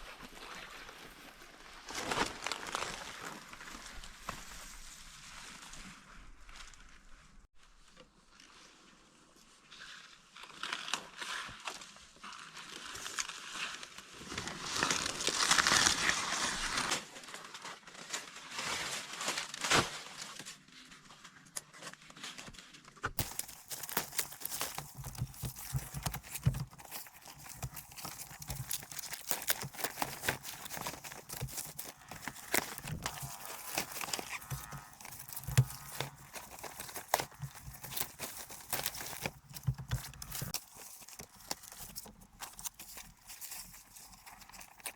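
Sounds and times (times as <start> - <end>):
dry plant material rustling: 23.2 - 44.9.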